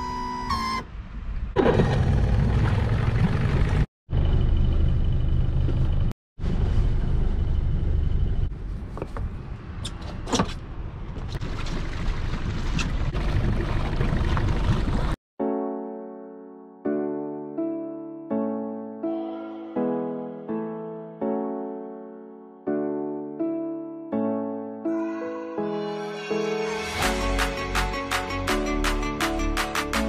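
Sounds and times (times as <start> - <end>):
piano music: 15.4 - 30.0.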